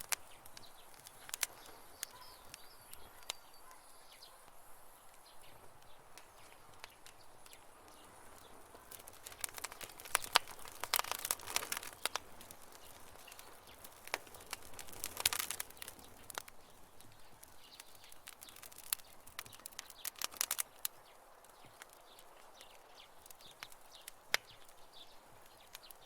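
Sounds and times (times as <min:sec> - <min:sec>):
campfire crackling and popping: 0:00.0 - 0:26.0
low fire hiss: 0:00.0 - 0:26.0.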